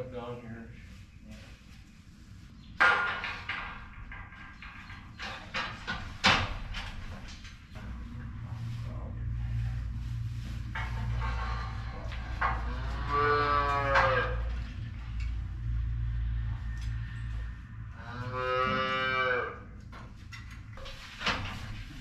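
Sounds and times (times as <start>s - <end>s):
low steady hum: 0.0s - 22.0s
cow mooing: 12.7s - 14.6s, 18.0s - 19.7s.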